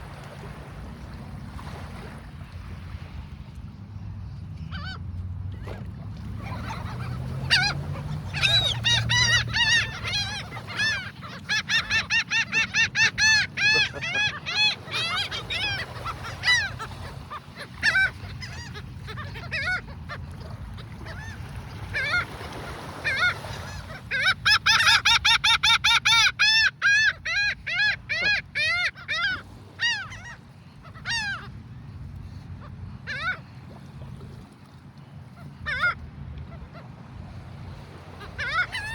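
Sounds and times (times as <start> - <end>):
flock of birds honking: 6.4 - 31.5, 38.1 - 38.9.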